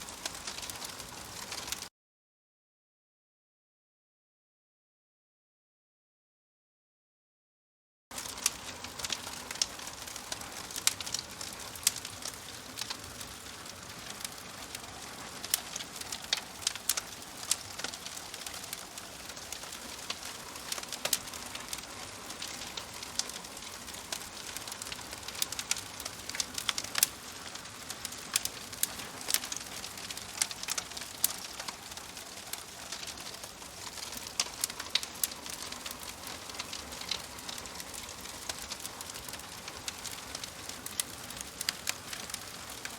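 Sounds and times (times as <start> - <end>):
burning logs popping: 0.0 - 1.8, 8.2 - 42.9
wood fire crackling: 0.0 - 1.9, 8.1 - 42.9.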